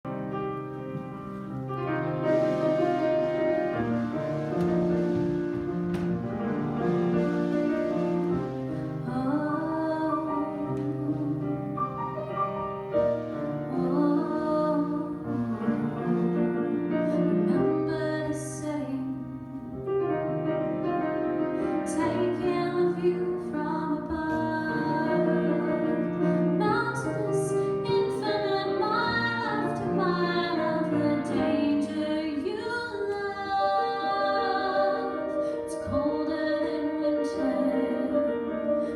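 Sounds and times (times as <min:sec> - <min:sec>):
piano accompaniment: 0:00.0 - 0:38.9
woman singing with vibrato: 0:08.8 - 0:11.9, 0:13.6 - 0:16.4, 0:17.2 - 0:19.6, 0:21.9 - 0:38.9.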